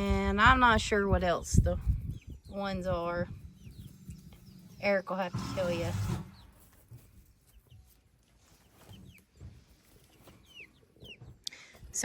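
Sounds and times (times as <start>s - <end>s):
chicks peeping: 0.0s - 12.0s
hens clucking: 2.6s - 12.0s.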